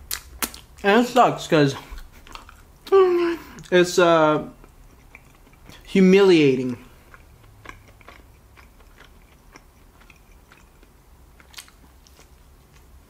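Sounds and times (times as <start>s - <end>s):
wet mouth clicks: 0.1s - 0.8s, 1.9s - 3.0s, 4.6s - 5.8s
close-miked chewing: 0.1s - 0.9s, 1.7s - 3.8s, 4.4s - 13.0s.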